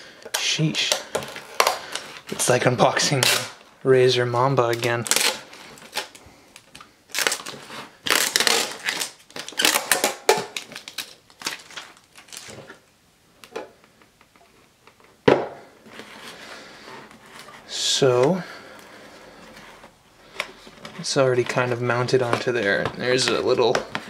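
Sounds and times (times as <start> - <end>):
packaging crinkling and rustling: 0.3 - 3.7, 4.5 - 13.6.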